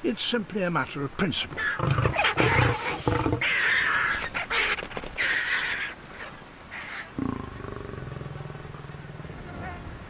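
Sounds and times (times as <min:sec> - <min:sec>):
lion snarling: 0:01.6 - 0:03.9, 0:07.2 - 0:09.9
lion growling low: 0:07.2 - 0:10.0.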